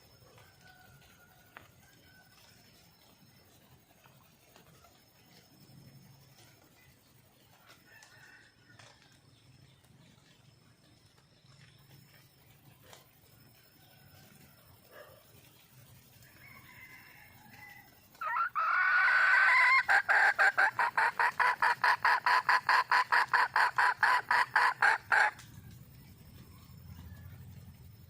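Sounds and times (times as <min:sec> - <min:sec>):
junglefowl hen calling: 0:18.1 - 0:25.5
rapid clucks: 0:18.1 - 0:28.0.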